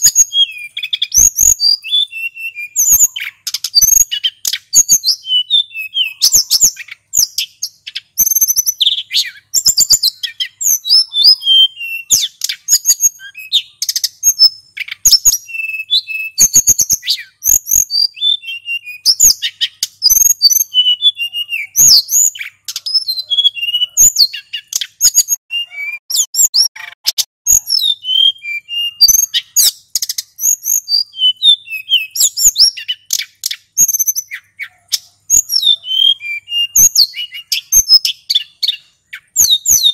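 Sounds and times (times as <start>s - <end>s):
songbird singing: 0.0s - 39.9s
sharp bird clicks: 2.8s - 5.0s, 24.3s - 25.4s, 32.0s - 35.5s.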